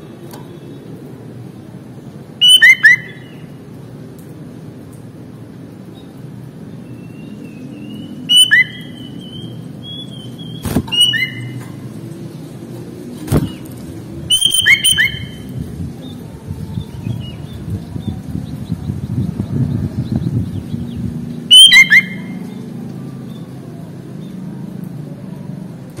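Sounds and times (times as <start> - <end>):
bird whistled song: 2.4 - 3.4, 6.9 - 11.6, 14.3 - 15.5, 20.0 - 22.5
thin held whistle: 8.3 - 9.5, 14.3 - 15.4, 21.5 - 22.3.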